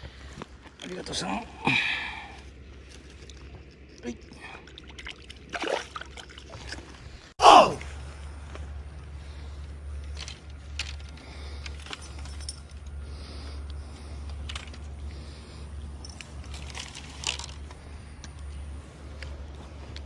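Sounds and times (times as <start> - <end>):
steady low rumble: 0.0 - 20.0
small metal objects clinking: 10.0 - 13.0, 16.0 - 17.6.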